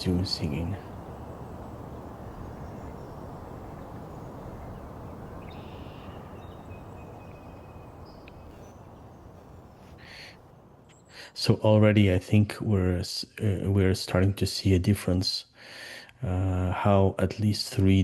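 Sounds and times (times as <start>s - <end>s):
low outdoor background rumble: 0.0s - 10.8s
faint bird whistles and calls: 0.0s - 11.2s.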